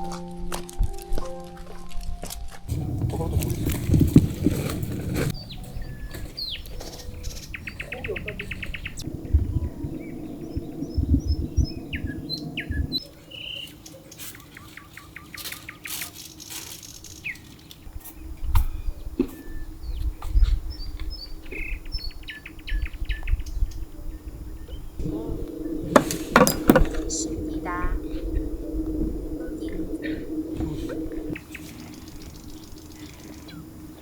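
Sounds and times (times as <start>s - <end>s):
low hum: 2.7s - 13.1s, 18.1s - 34.0s
small birds chirping: 2.7s - 34.0s
clicks and knocks: 26.0s - 27.2s.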